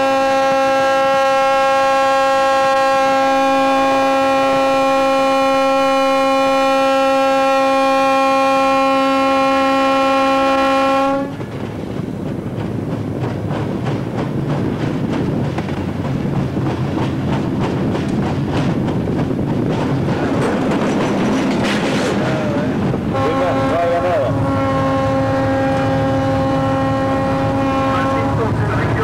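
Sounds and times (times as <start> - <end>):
locomotive horn blast: 0.0 - 11.4, 23.1 - 29.0
locomotive engine running: 2.4 - 29.0
wheels clicking over rail joints: 11.3 - 23.0.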